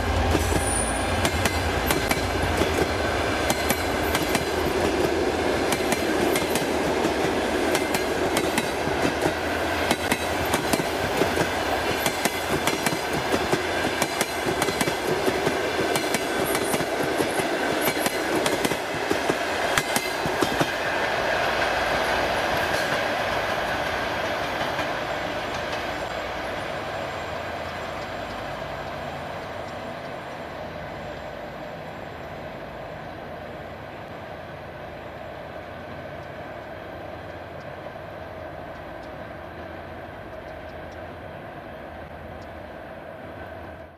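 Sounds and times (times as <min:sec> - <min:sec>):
train coaches rolling past: 0:00.0 - 0:43.9
wheels clicking over rail joints: 0:00.2 - 0:20.8.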